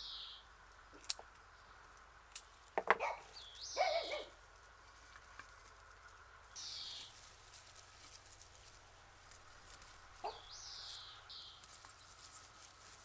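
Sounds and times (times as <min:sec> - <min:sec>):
bird calling: 0:02.8 - 0:04.4, 0:06.5 - 0:07.2, 0:09.7 - 0:12.1.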